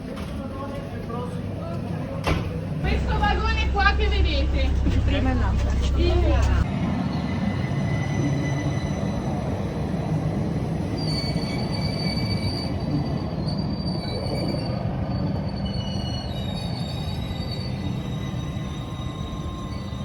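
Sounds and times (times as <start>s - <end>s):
train wheels rumbling on rails: 0.0s - 20.0s
high wheel squeal: 10.6s - 20.0s.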